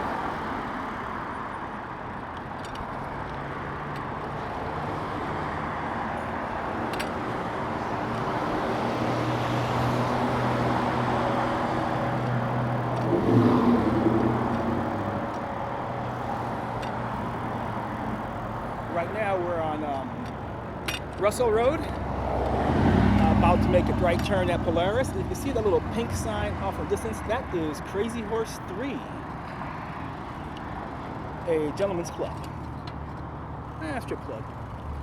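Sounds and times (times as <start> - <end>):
traffic noise: 0.0 - 35.0
vehicle engine passing: 8.4 - 20.3, 21.5 - 29.1.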